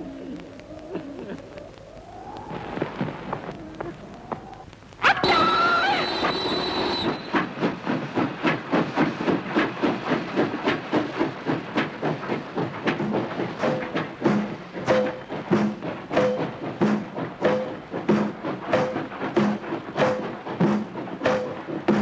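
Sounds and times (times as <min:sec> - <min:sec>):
high steady squeal: 0:01.6 - 0:07.5
train wheels clicking over rail joints: 0:05.2 - 0:22.0.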